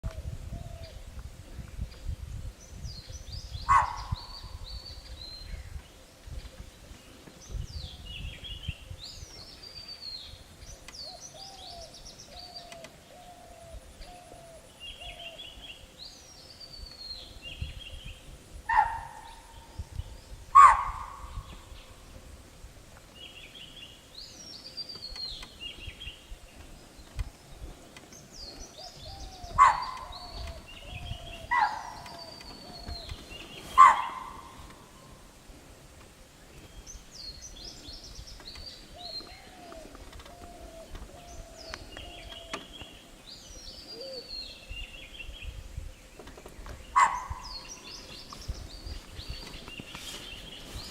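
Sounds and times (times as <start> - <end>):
deer alarm barks: 3.7 - 4.2, 18.7 - 19.3, 20.6 - 21.3, 29.6 - 30.1, 31.5 - 32.1, 33.8 - 34.6, 47.0 - 47.5
birds whistling: 28.2 - 35.2, 36.6 - 45.4.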